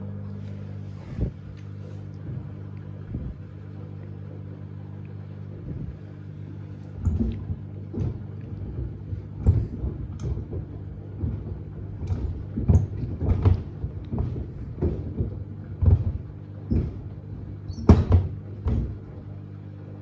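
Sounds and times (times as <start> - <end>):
washing machine motor hum: 0.0 - 20.0
shoes thumping against drum: 7.0 - 19.2.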